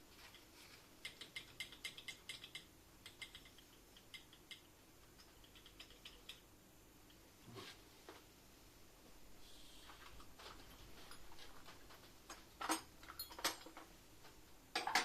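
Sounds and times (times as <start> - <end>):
light irregular clicks: 1.0 - 7.2.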